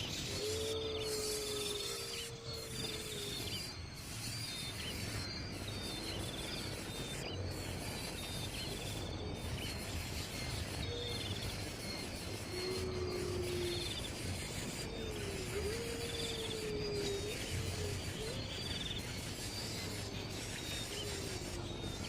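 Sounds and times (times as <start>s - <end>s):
steady outdoor noise: 0.0s - 22.0s.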